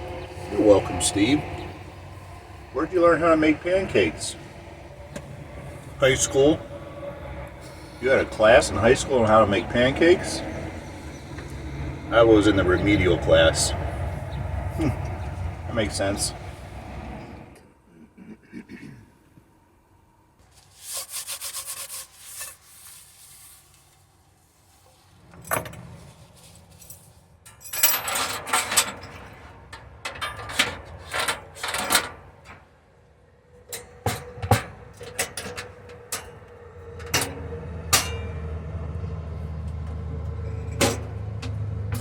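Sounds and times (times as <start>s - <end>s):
steady low hum: 0.0s - 20.1s.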